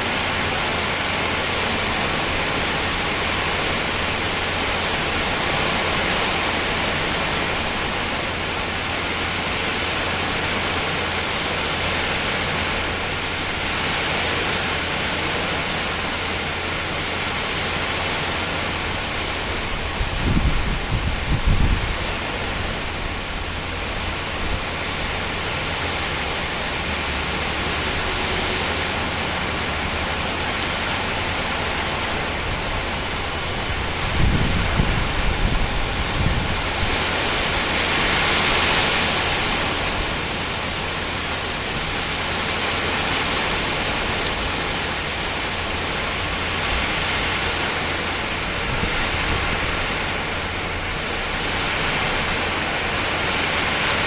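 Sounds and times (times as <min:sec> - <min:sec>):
rain on a tin roof: 0:00.0 - 0:54.0
low rumbles: 0:15.0 - 0:53.6.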